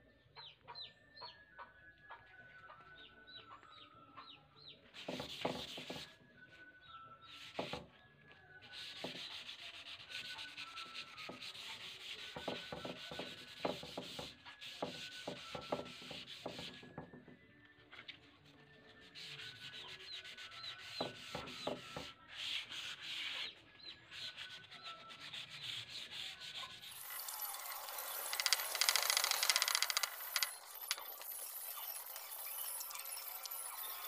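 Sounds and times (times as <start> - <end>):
sandpaper rubbing on wood: 5.0 - 6.1, 8.7 - 16.9, 19.0 - 34.0.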